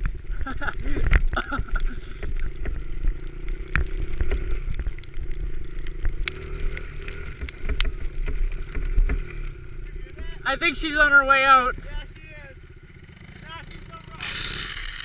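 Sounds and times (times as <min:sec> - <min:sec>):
small motorbike engine running: 0:00.0 - 0:15.0
knocks and clicks: 0:07.3 - 0:09.3.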